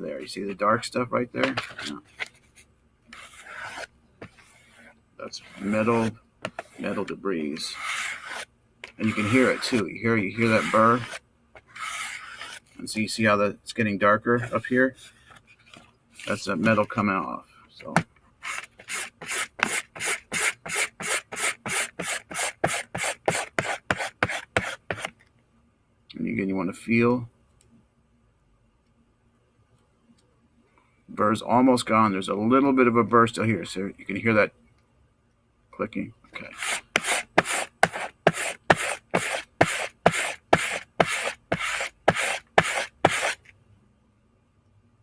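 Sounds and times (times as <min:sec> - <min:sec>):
knife scraping on cardboard strop: 0:03.1 - 0:12.7, 0:18.4 - 0:25.1, 0:36.4 - 0:43.4.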